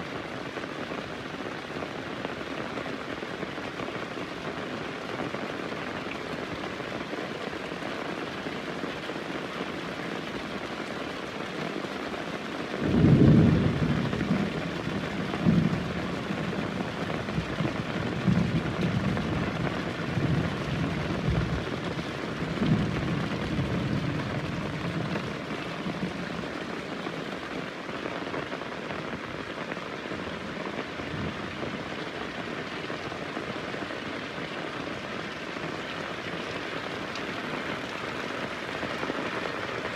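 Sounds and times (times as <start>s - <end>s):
heavy rain: 0.0s - 39.9s
thunder rolling: 12.8s - 16.6s, 17.3s - 26.2s.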